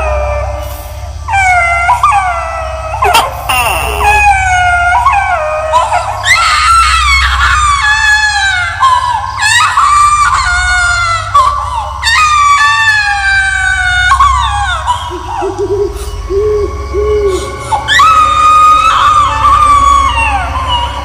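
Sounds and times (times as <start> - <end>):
low steady drone: 0.0 - 21.0
ghostly voice screaming and wailing: 3.0 - 10.5.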